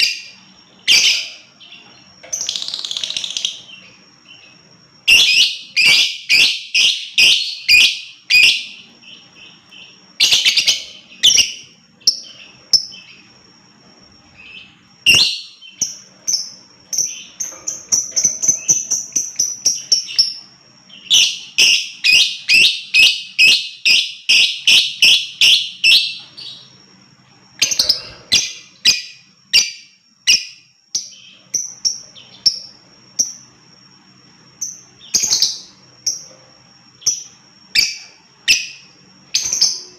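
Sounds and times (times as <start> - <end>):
lovebird shrill chirps: 2.4 - 13.2.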